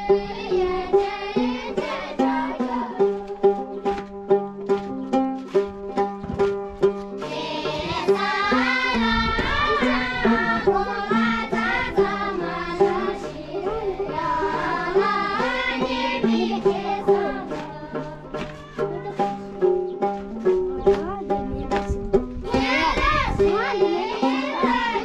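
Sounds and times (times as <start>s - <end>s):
plucked string instrument: 0.0s - 25.0s
voices singing folk song: 0.0s - 25.0s.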